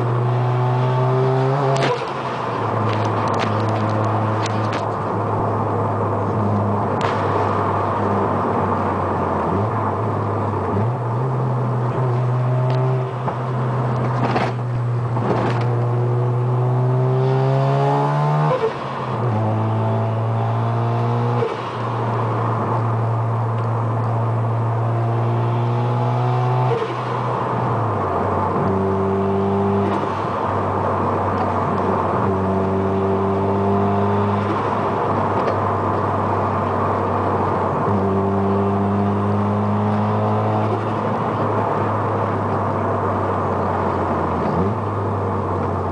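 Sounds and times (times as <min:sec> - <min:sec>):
rotary engine accelerating: 0:00.0 - 0:04.9, 0:10.7 - 0:21.6, 0:24.4 - 0:27.2, 0:32.2 - 0:35.4, 0:37.8 - 0:41.6.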